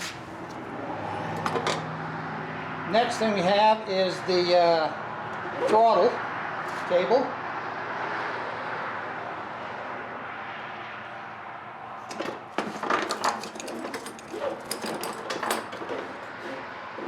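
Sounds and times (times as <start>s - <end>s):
small metallic clicks and rattles: 12.1s - 16.6s.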